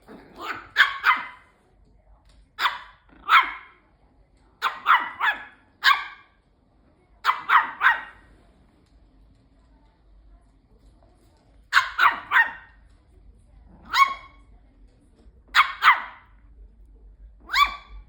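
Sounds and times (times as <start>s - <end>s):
small dog barking sharply: 0.4s - 1.4s, 2.6s - 3.8s, 4.6s - 6.3s, 7.2s - 8.2s, 11.7s - 12.7s, 15.5s - 16.2s, 17.4s - 17.9s.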